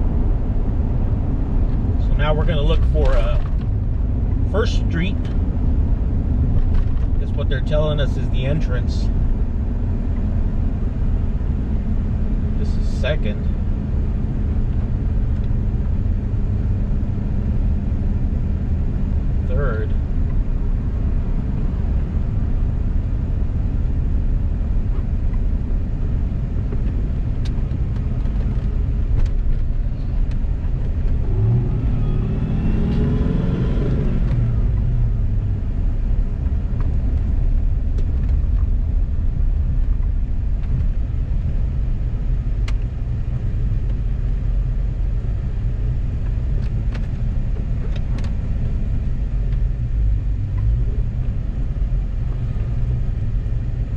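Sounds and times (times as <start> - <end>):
road rumble: 0.0 - 53.9
car engine revving: 25.6 - 38.5.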